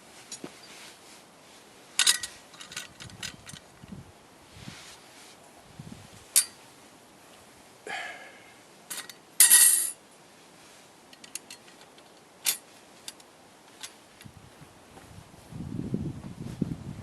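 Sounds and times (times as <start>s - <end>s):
metal parts clinking: 2.0s - 3.7s, 8.9s - 10.0s, 11.1s - 14.0s.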